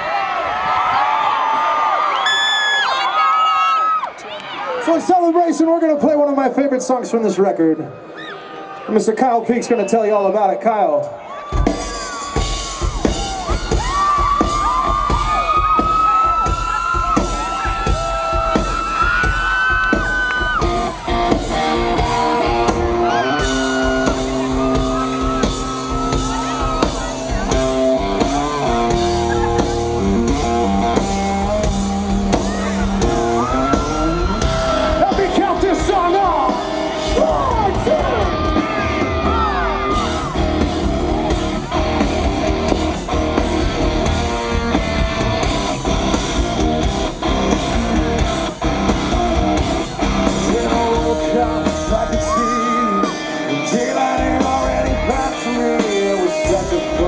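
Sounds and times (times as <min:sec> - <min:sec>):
live rock band playing: 0:11.4 - 0:57.0
electric guitar: 0:11.5 - 0:57.0
person singing: 0:50.2 - 0:57.0.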